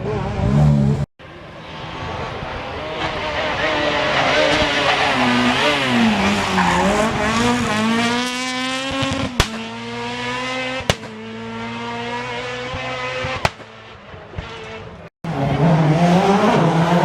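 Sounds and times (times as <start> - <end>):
rally car engine: 0.0 - 17.0
sharp bangs: 7.7 - 12.1, 12.7 - 14.1.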